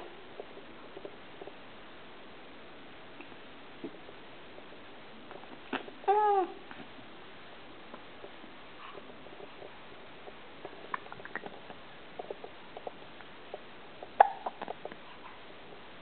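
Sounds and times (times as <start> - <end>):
small animal squeaking and clicking: 10.3 - 15.4.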